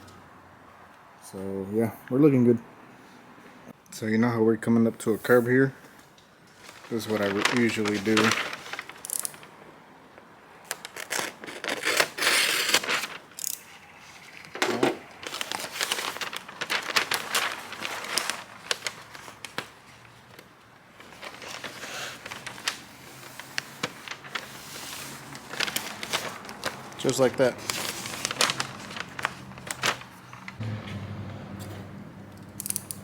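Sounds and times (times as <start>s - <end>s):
masking tape crinkling and tearing: 6.7s - 9.5s, 10.6s - 13.6s, 15.2s - 19.8s, 21.0s - 30.6s.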